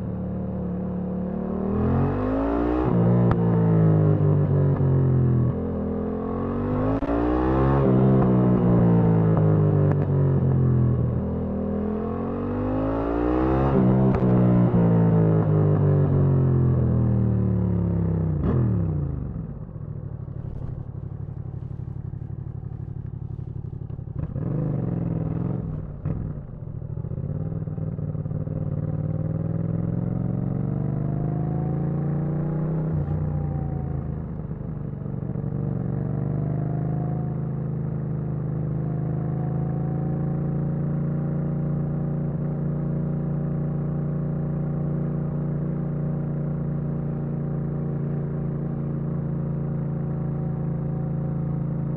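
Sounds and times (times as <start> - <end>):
motorcycle engine: 14.0 - 51.9.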